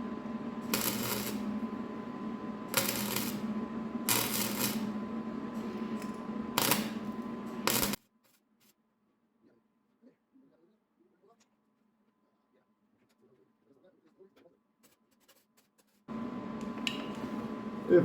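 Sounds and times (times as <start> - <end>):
steady hum: 0.0 - 8.0, 16.1 - 18.0.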